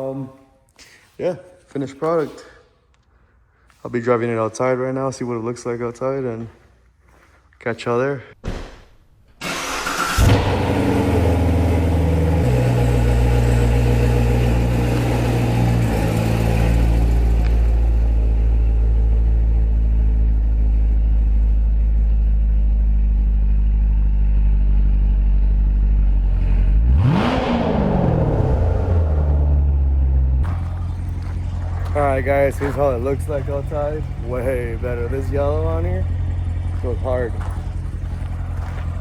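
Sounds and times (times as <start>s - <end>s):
engine rev: 9.4s - 39.0s
car engine driving slowly: 9.6s - 26.9s, 28.0s - 39.0s.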